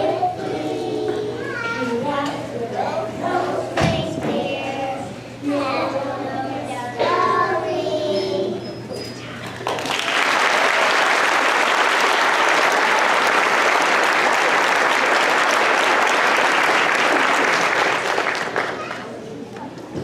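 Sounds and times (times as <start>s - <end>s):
audience applause: 9.6s - 19.2s.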